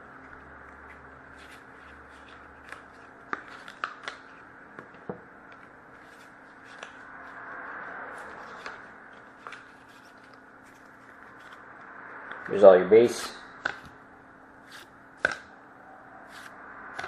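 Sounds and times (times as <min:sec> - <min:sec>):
cards clicking and tapping: 0:00.6 - 0:04.2, 0:13.6 - 0:14.0, 0:14.7 - 0:15.5.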